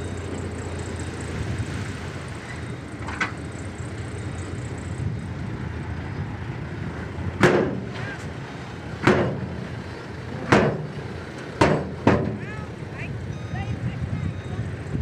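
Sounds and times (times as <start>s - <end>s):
diesel construction machinery running: 0.0s - 15.0s
loud sharp bangs with ringing tail: 11.6s - 12.4s.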